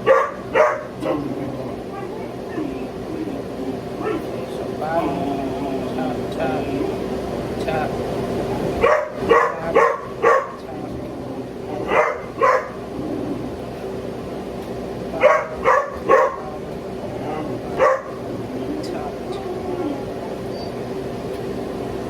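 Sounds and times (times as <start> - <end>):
dog barking sharply: 0.0 - 1.0, 8.8 - 10.6, 11.8 - 12.8, 15.2 - 16.4, 17.8 - 18.2.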